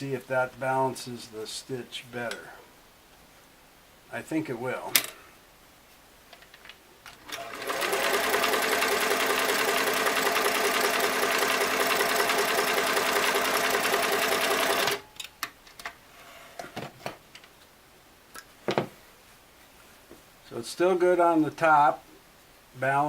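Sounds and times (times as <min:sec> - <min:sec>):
sewing machine stitching: 0:07.2 - 0:15.0.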